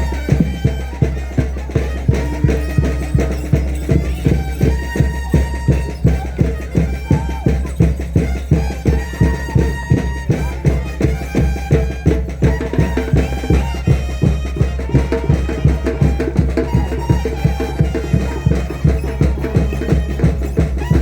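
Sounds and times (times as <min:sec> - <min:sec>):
reedy wind melody: 0:00.0 - 0:21.0
steady drumbeat: 0:00.0 - 0:21.0.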